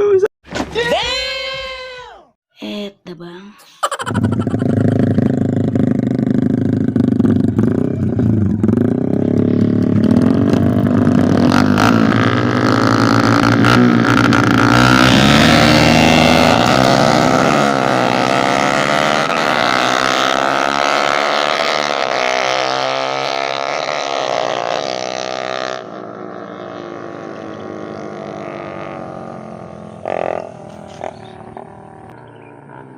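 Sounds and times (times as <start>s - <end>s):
motorcycle engines revving hard: 4.1s - 32.9s.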